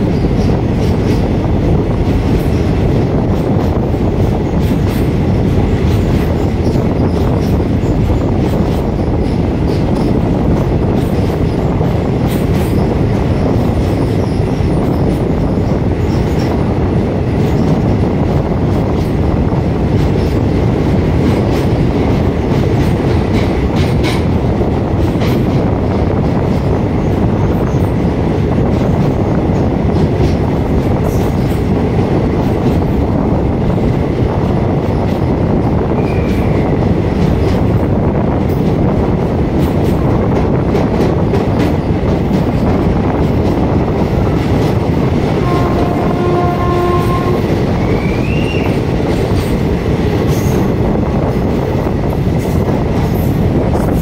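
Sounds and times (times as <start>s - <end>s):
rail clicks: 0.0s - 54.0s
train rumbling in tunnel: 0.0s - 54.0s
high wheel squeal: 47.8s - 48.8s.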